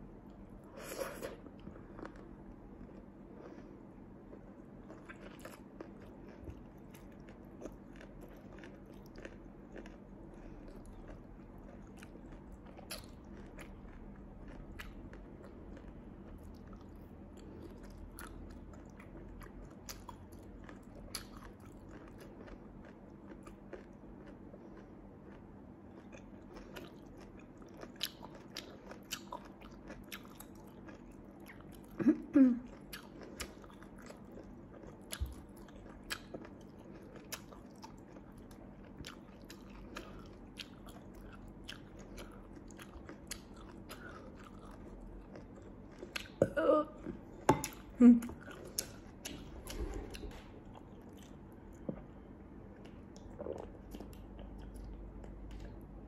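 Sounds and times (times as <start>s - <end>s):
chewing with wet clicks: 1.5s - 32.0s, 32.6s - 46.4s, 47.6s - 56.0s.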